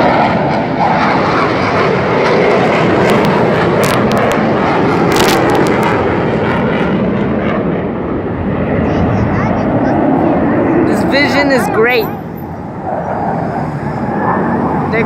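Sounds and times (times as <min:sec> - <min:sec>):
airplane engines droning: 0:00.0 - 0:15.0
short crackles: 0:05.1 - 0:05.9.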